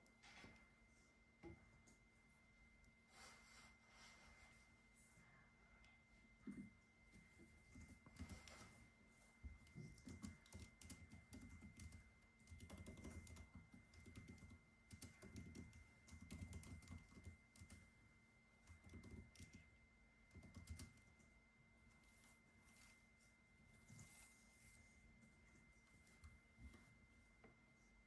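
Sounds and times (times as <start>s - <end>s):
typing on computer keyboard: 8.0s - 8.6s, 9.6s - 17.9s, 18.6s - 19.7s, 20.3s - 21.1s.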